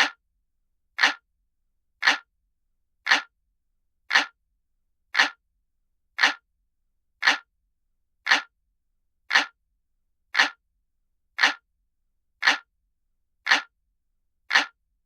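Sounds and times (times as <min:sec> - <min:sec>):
clock ticking: 0:00.0 - 0:00.2, 0:01.0 - 0:01.2, 0:02.0 - 0:02.3, 0:03.1 - 0:03.3, 0:04.1 - 0:04.4, 0:05.2 - 0:05.4, 0:06.2 - 0:06.4, 0:07.2 - 0:07.5, 0:08.3 - 0:08.5, 0:09.3 - 0:09.6, 0:10.4 - 0:10.6, 0:11.4 - 0:11.6, 0:12.4 - 0:12.7, 0:13.5 - 0:13.7, 0:14.5 - 0:14.8.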